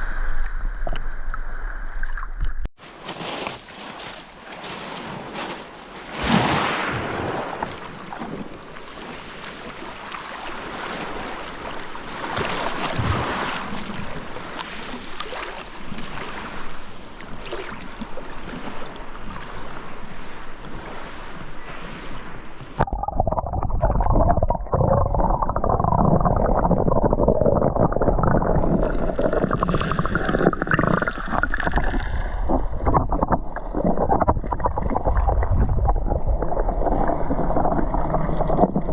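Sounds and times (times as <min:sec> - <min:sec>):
sea surf washing onto shore: 0:03.1 - 0:15.1.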